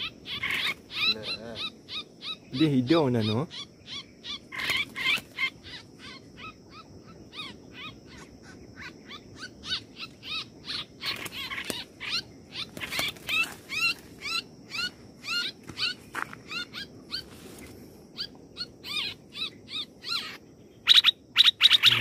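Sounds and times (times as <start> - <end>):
bird repeated short calls: 18.9 - 22.0.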